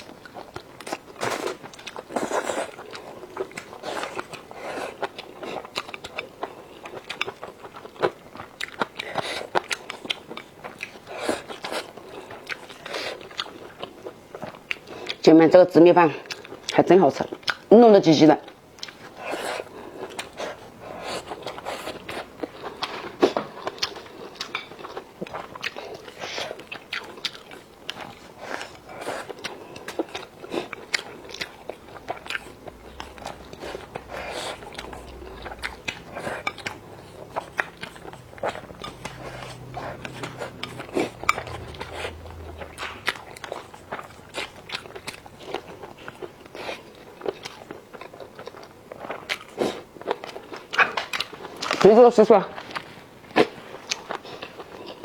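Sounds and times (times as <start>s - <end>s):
food crunching: 0.0s - 15.2s, 18.4s - 52.0s
chewing and mouth noises: 0.0s - 55.0s.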